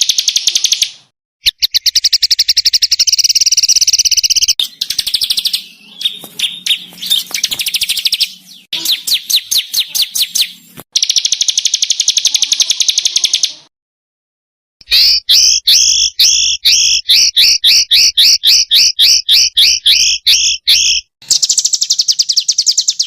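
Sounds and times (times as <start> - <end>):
songbirds rattling trills: 1.6 - 13.7, 14.8 - 23.0.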